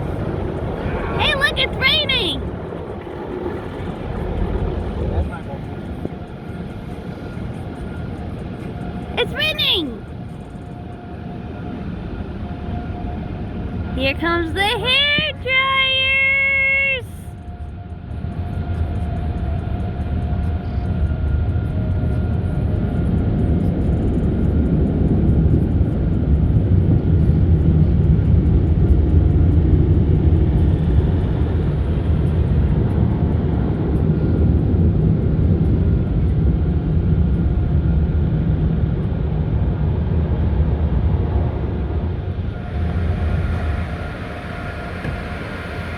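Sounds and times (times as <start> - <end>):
car wash machinery roar: 0.0 - 17.0, 29.0 - 45.9.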